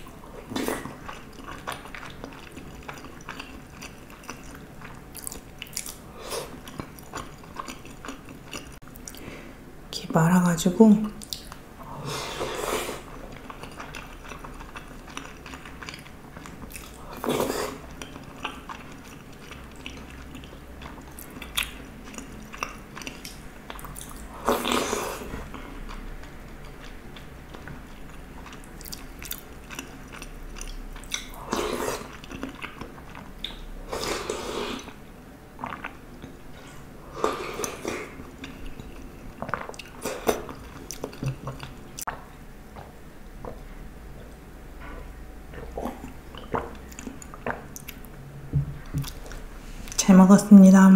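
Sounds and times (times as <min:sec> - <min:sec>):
chewing wet rice: 0:00.4 - 0:09.3, 0:12.3 - 0:35.0, 0:35.6 - 0:48.1.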